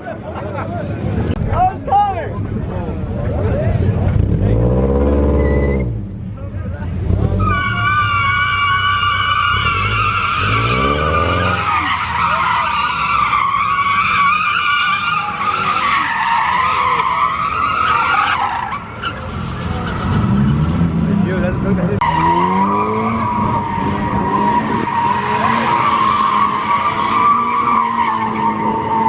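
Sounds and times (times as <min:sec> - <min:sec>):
car engine revving: 0:02.5 - 0:13.3, 0:19.2 - 0:29.0
tires squealing: 0:03.2 - 0:29.0.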